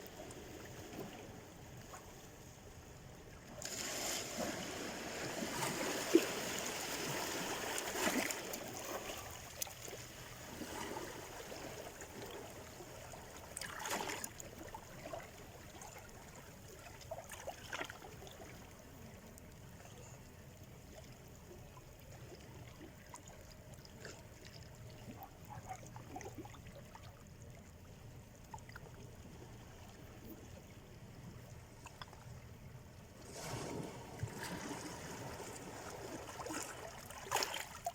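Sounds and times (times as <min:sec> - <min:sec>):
sea surf on shore: 0:03.5 - 0:14.7, 0:33.2 - 0:37.9
water splashes: 0:03.5 - 0:27.7, 0:33.2 - 0:37.9.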